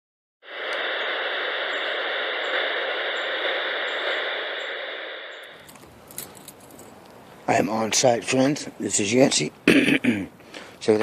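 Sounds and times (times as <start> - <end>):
radio static hiss: 0.4 - 5.9.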